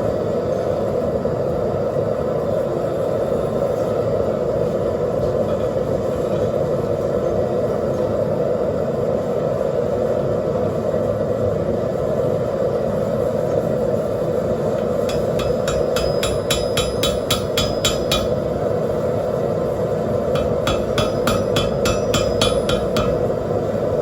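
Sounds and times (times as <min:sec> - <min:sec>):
forge burner roaring: 0:00.0 - 0:24.0
hammer blows on anvil: 0:15.0 - 0:18.8, 0:20.2 - 0:23.6.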